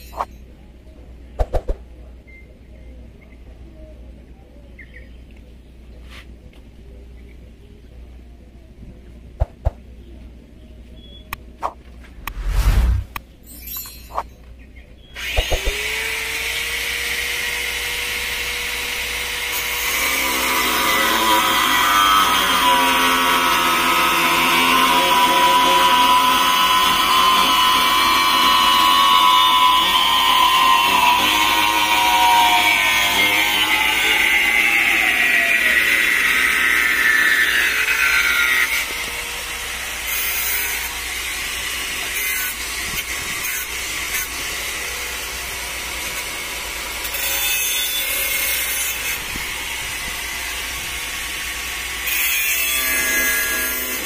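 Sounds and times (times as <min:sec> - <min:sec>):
power tool cutting wood: 0:15.2 - 0:54.0.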